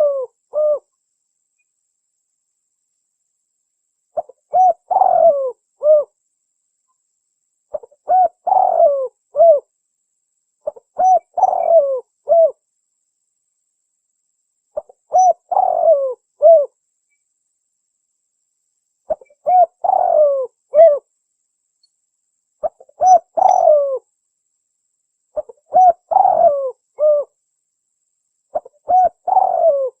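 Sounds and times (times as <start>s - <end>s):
dove cooing: 0.0s - 0.9s, 4.2s - 6.2s, 7.7s - 9.7s, 10.6s - 12.6s, 14.8s - 16.8s, 19.1s - 21.1s, 22.6s - 24.1s, 25.4s - 27.4s, 28.5s - 30.0s.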